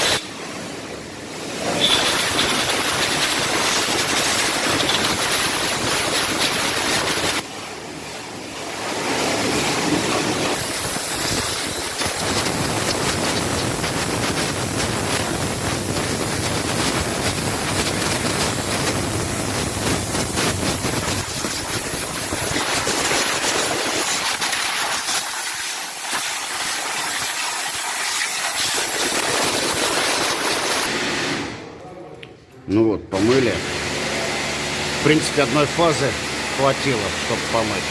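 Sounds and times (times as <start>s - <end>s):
pressure washer jet hissing: 0.0s - 0.7s, 1.4s - 7.4s, 8.8s - 31.5s.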